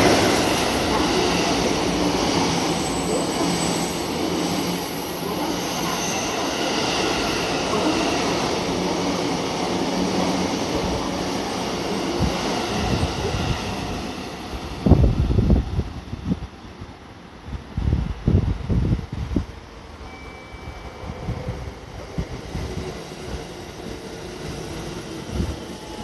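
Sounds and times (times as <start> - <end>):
train wheels rumbling on rails: 0.0 - 19.6
wind buffeting microphone: 12.0 - 19.6, 21.0 - 26.0.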